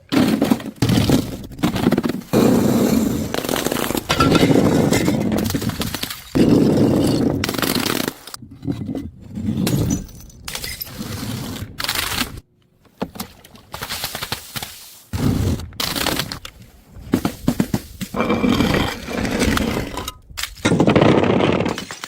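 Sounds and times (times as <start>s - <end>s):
objects crushed and breaking: 0.0s - 11.0s, 17.1s - 22.0s.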